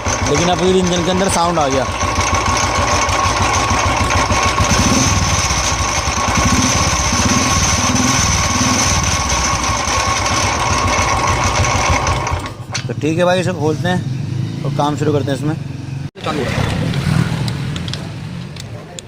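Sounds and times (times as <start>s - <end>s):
knocking inside engine: 0.0s - 13.0s
motorcycle engine running: 0.0s - 14.5s.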